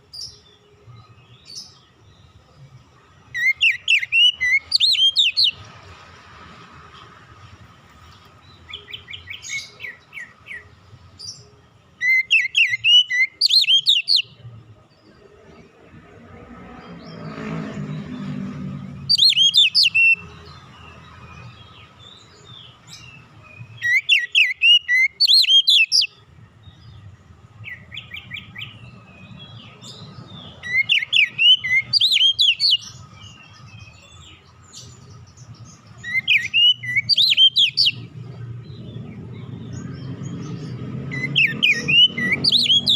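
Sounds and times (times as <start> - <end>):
bird singing whistled notes: 3.2 - 5.7, 8.4 - 14.5, 16.8 - 27.0, 27.6 - 42.9.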